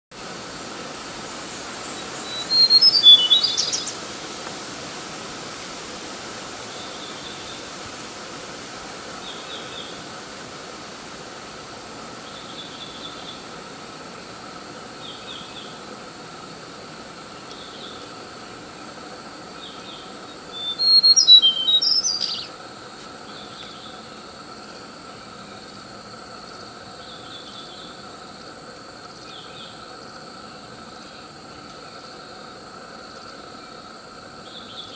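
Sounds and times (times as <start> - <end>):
background hiss: 0.1 - 34.9
songbird singing: 1.2 - 4.1, 9.1 - 10.2, 12.1 - 28.3, 29.1 - 34.9.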